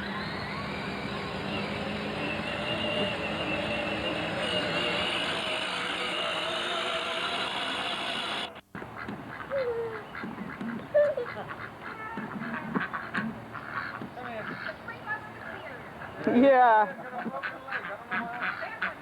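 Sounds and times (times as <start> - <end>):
vehicle engine running: 0.0 - 9.0
duck quacking: 8.5 - 14.8, 16.9 - 19.0.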